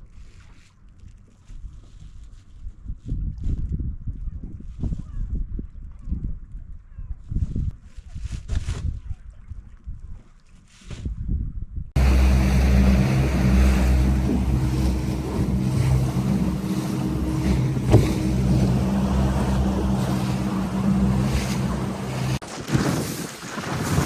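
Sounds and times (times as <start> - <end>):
wind: 0.0 - 24.0
motorboat engine running: 12.0 - 22.4
water rushing: 12.0 - 24.0.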